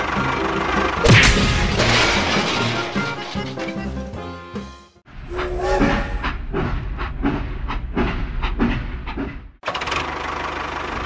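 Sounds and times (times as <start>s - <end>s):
short pitched toots: 5.3s - 6.4s.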